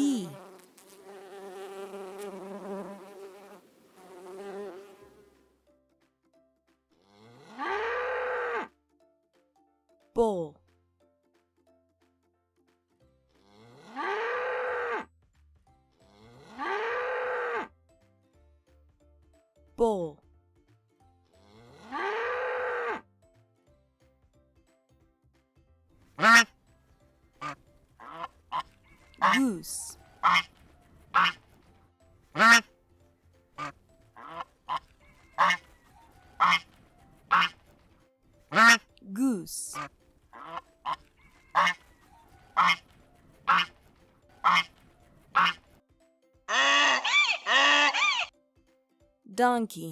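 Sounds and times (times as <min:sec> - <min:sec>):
faint soft music: 0:00.0 - 0:47.7, 0:48.3 - 0:49.9
bull mooing: 0:07.1 - 0:08.7, 0:13.5 - 0:15.1, 0:16.1 - 0:17.7, 0:21.4 - 0:23.0
goose honking: 0:26.2 - 0:26.5, 0:27.4 - 0:31.5, 0:32.4 - 0:32.6, 0:33.6 - 0:37.6, 0:38.5 - 0:38.8, 0:39.7 - 0:43.8, 0:44.4 - 0:45.6, 0:46.5 - 0:48.3.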